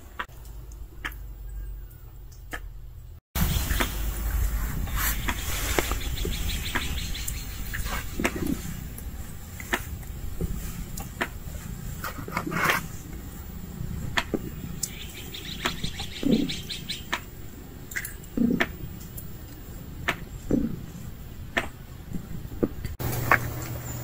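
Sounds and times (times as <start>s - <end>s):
small birds chirping: 0.0s - 24.0s
bird trill: 1.3s - 2.5s, 3.4s - 8.8s, 14.4s - 17.3s.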